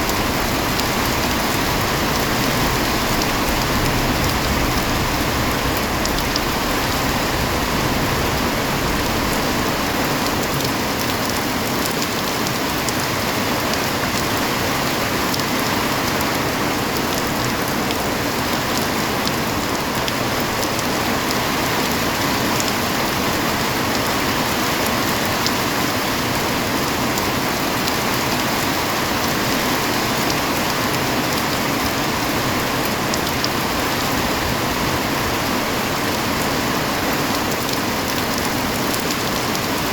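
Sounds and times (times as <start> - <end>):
rain drop ticks: 0.0 - 14.4, 37.1 - 39.9
heavy rain hissing: 0.0 - 39.9.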